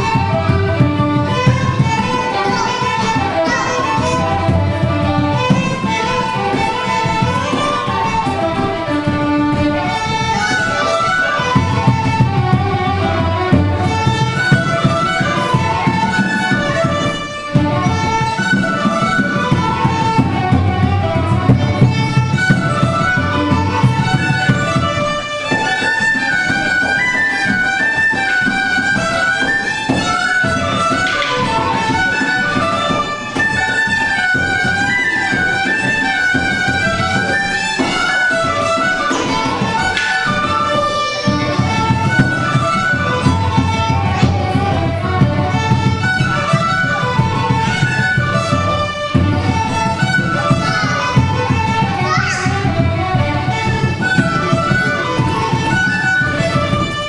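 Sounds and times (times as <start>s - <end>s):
fiddle playing a lively jig: 0.0s - 57.0s
low accompaniment: 0.0s - 57.0s.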